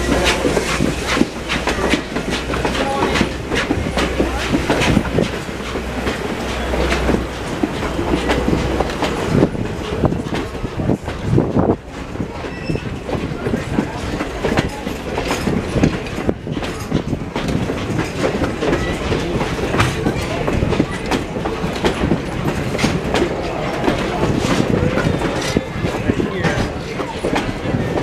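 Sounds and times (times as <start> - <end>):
low rumble of railroad cars: 0.0 - 28.0
train wheels clicking over rail joints: 0.0 - 28.0.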